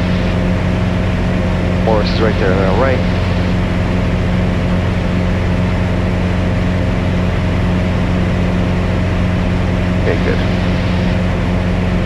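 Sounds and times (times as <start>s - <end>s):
aircraft engine and propeller droning: 0.0s - 12.0s.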